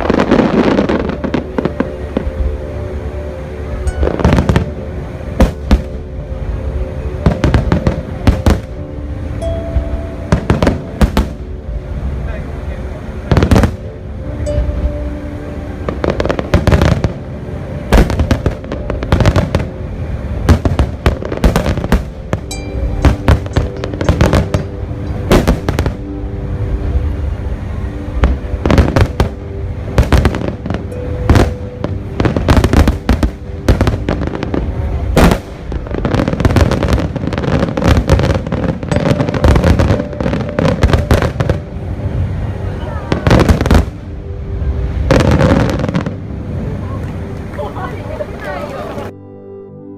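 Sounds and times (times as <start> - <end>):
fireworks crackling: 0.0 - 2.5, 3.8 - 4.8, 9.8 - 11.4, 12.2 - 13.9, 15.8 - 26.2, 28.1 - 44.1, 44.9 - 49.1
music with long held notes: 0.0 - 49.9
fireworks booming: 7.2 - 8.8, 9.8 - 11.4, 13.3 - 13.9, 17.9 - 19.7, 20.4 - 26.0, 30.0 - 41.7.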